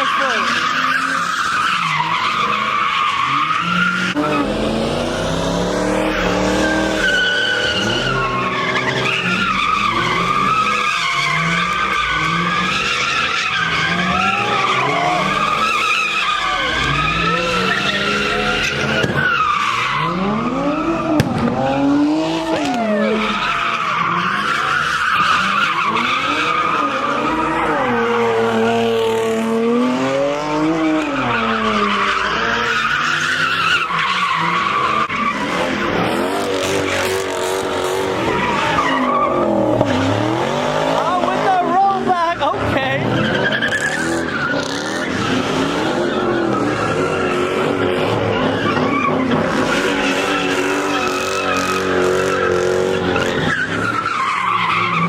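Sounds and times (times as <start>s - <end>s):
car engine revving: 0.0s - 55.0s
tires screeching: 0.0s - 55.0s.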